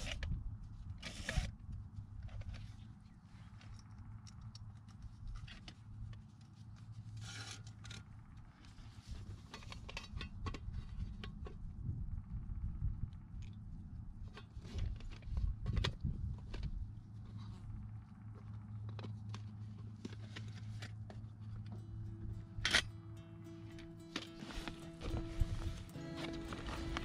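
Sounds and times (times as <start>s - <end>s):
steady low rumble: 10.8s - 14.4s, 20.8s - 27.0s.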